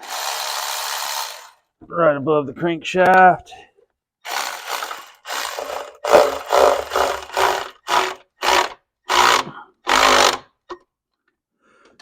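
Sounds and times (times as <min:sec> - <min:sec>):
power wrench bursts: 0:00.0 - 0:01.6, 0:04.3 - 0:10.5.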